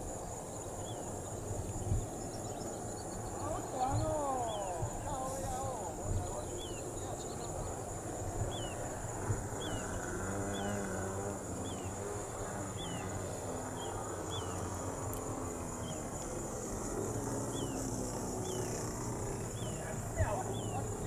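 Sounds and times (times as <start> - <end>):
high insect drone: 0.0 - 21.0
bird chirping: 0.2 - 21.0.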